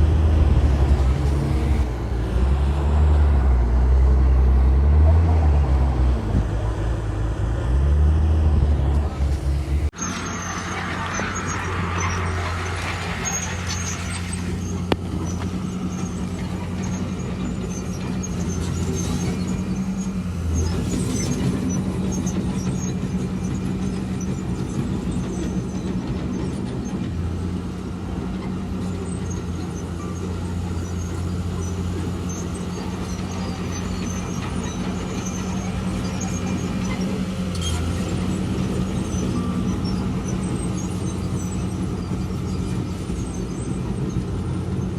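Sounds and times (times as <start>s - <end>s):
diesel engine humming: 0.0s - 44.9s
rushing noise: 8.6s - 15.3s.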